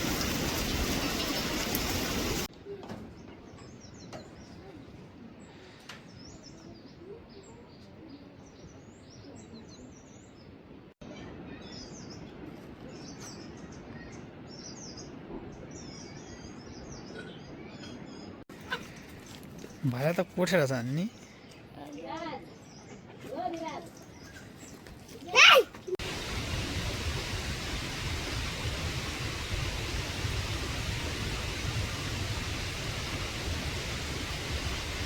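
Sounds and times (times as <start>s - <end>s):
small birds chirping: 3.1s - 25.6s.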